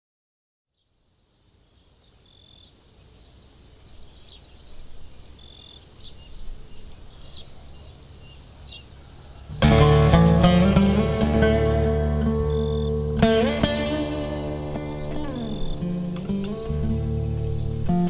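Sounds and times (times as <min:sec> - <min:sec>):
low steady background noise: 0:00.7 - 0:18.0
bird chirps and calls: 0:01.7 - 0:09.6, 0:11.8 - 0:18.0.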